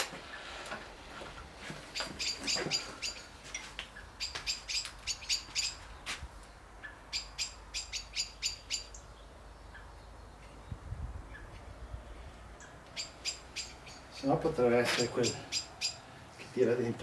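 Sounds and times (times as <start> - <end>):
small bird chirping: 1.9 - 3.3, 3.9 - 16.2.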